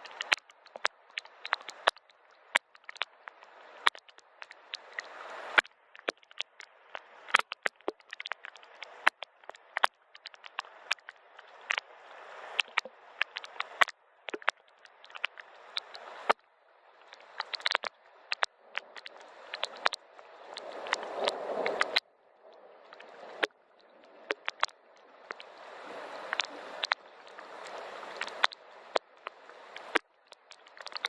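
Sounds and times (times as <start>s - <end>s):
soft rain hissing: 3.2s - 3.9s, 4.5s - 5.6s, 10.6s - 13.8s, 15.4s - 31.0s
raindrops tapping: 17.0s - 25.5s, 26.2s - 31.0s.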